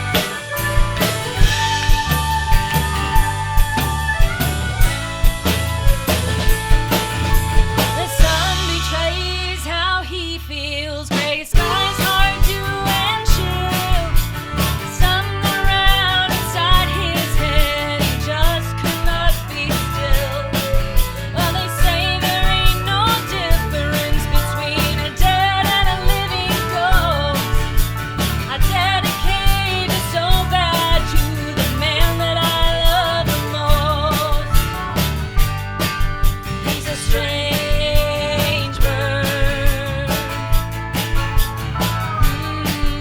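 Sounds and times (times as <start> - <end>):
fiddle: 0.0 - 9.4, 11.6 - 43.0
acoustic guitar: 0.0 - 43.0
bass: 0.0 - 43.0
drum kit: 0.0 - 43.0
pedal steel guitar: 0.0 - 43.0
person singing: 6.3 - 27.9, 28.5 - 34.8, 36.7 - 40.6, 41.8 - 43.0.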